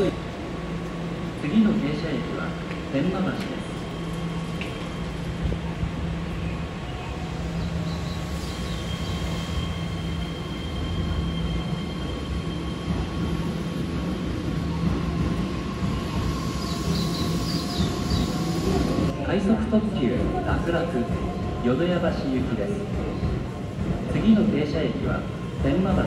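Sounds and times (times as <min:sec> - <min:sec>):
electric train low rumble: 0:00.0 - 0:26.0.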